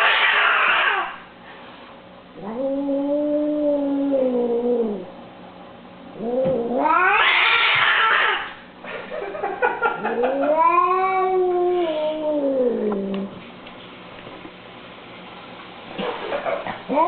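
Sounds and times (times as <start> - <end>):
cat yowling: 0.0 - 1.2, 6.2 - 8.6, 10.1 - 13.2.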